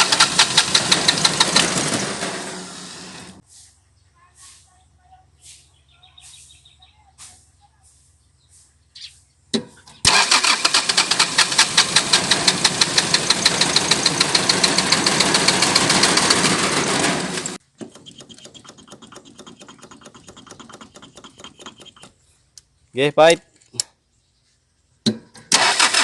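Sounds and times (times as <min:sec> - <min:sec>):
diesel engine knocking: 0:00.0 - 0:02.6, 0:10.4 - 0:17.6.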